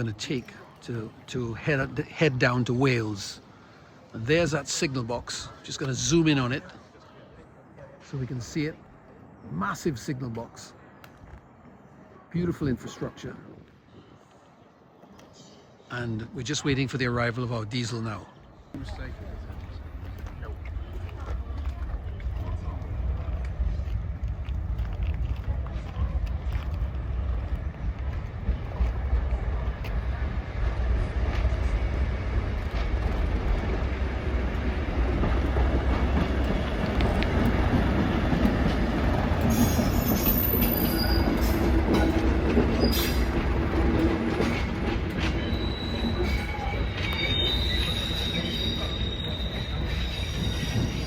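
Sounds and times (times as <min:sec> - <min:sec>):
train rumbling on rails: 0:18.8 - 0:51.0
wheels and brakes squealing: 0:39.4 - 0:51.0.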